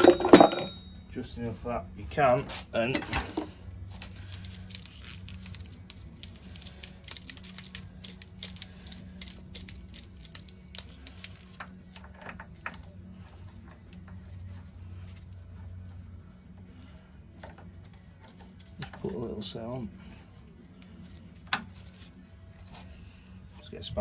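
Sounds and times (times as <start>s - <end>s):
metal tools clinking: 0.0s - 1.0s, 2.9s - 13.0s
steady low hum: 0.0s - 24.0s.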